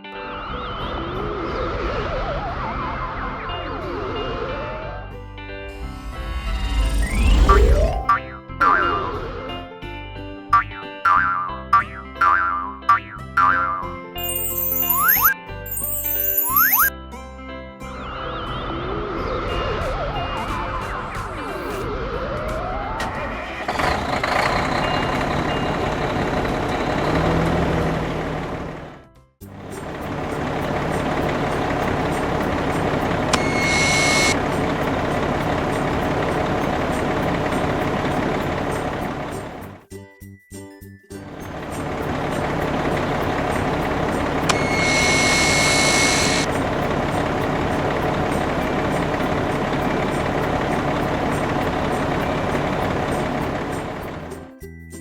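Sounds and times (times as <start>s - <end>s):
short high beeps: 14.2s - 16.9s, 33.3s - 34.4s, 44.5s - 46.5s
heavy vehicle engine running: 20.1s - 39.8s, 41.3s - 54.6s
click: 44.4s - 46.5s.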